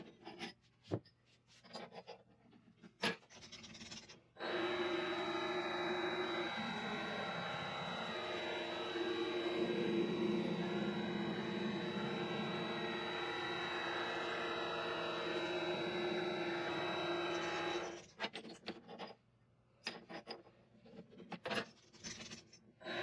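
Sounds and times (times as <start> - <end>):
lathe motor whine: 4.4 - 18.0
metal parts clicking and knocking: 17.9 - 22.6.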